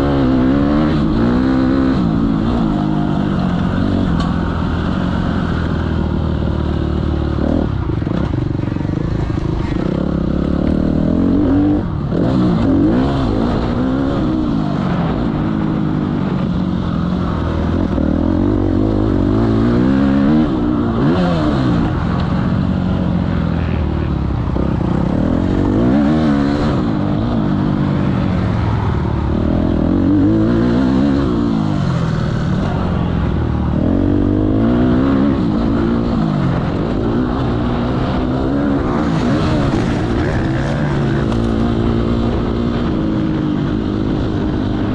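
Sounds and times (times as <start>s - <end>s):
motocross bikes revving: 0.0s - 44.9s.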